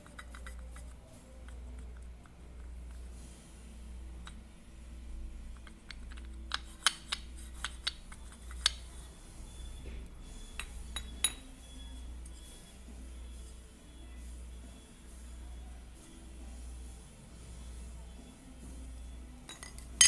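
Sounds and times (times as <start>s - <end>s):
steady low hum: 0.0s - 20.0s
small hard parts clinking: 10.6s - 11.5s, 19.4s - 20.0s.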